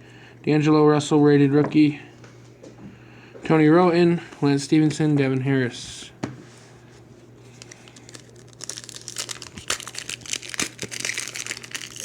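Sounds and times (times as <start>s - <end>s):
foil wrapper crinkling and tearing: 7.5s - 12.0s.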